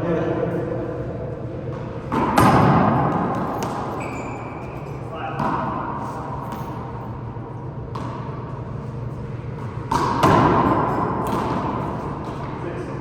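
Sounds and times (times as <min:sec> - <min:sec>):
handball thuds echoing: 0:01.6 - 0:04.0, 0:05.2 - 0:06.9, 0:07.8 - 0:08.5, 0:09.5 - 0:12.6.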